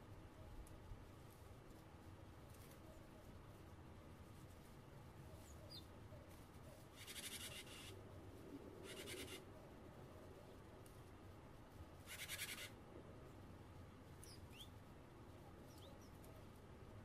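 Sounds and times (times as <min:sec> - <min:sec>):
bird harsh rattling churr calls: 0:07.0 - 0:08.0, 0:08.8 - 0:09.4, 0:12.1 - 0:12.8.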